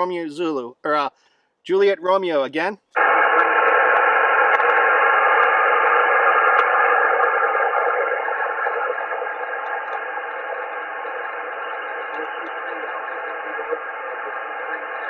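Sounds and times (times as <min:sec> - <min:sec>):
radio static hiss: 0:03.0 - 0:15.0
weak radio station: 0:03.0 - 0:15.0.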